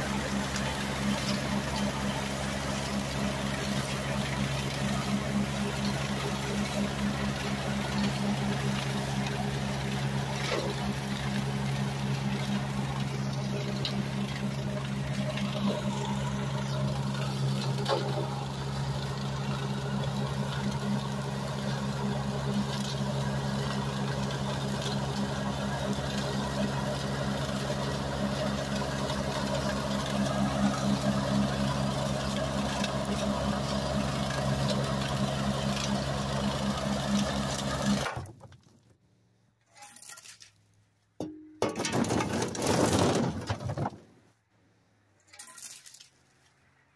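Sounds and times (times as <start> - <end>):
small engine running: 0.0 - 38.3.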